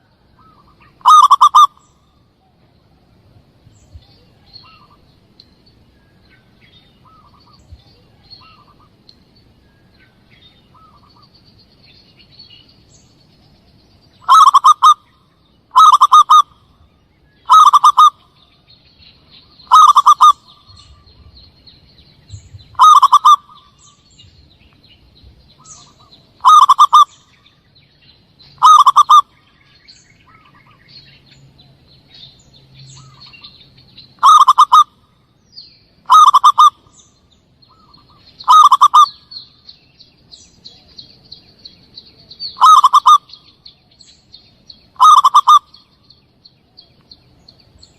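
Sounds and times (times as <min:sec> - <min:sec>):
faint bird chirps: 0:00.0 - 0:47.9
dove cooing: 0:00.4 - 0:01.8, 0:14.2 - 0:15.0, 0:15.7 - 0:16.6, 0:17.5 - 0:18.2, 0:19.7 - 0:21.3, 0:22.7 - 0:23.8, 0:25.6 - 0:27.2, 0:28.6 - 0:29.3, 0:34.2 - 0:35.0, 0:36.0 - 0:36.9, 0:37.7 - 0:39.2, 0:42.6 - 0:43.3, 0:45.0 - 0:45.7.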